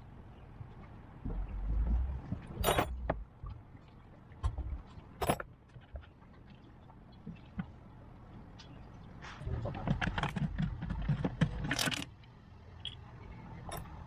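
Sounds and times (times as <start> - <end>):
low rumble: 1.2 - 3.5
metal parts clinking: 2.6 - 3.0, 11.6 - 12.1.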